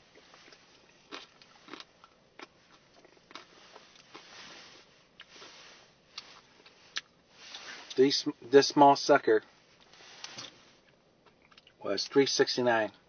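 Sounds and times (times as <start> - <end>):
person crunching candy while eating: 0.1 - 7.7.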